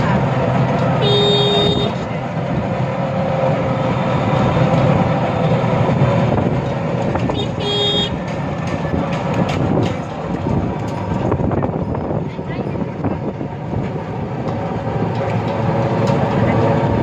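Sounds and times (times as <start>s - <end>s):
vehicle engine road and wind noise: 0.0s - 17.0s
short horn beep: 1.0s - 2.0s, 7.4s - 8.2s.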